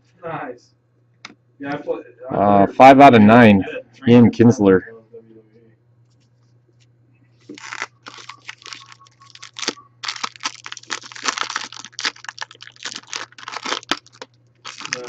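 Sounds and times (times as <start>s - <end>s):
low electrical hum: 0.0s - 15.0s
plastic wrapping crinkling and tearing: 7.5s - 15.0s.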